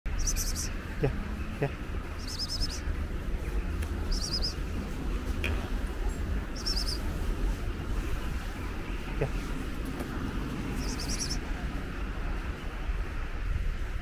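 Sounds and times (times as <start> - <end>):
small bird twittering: 0.1 - 0.7, 2.2 - 2.9, 4.0 - 4.6, 6.5 - 7.0, 10.7 - 11.4
low outdoor rumble: 0.1 - 14.0.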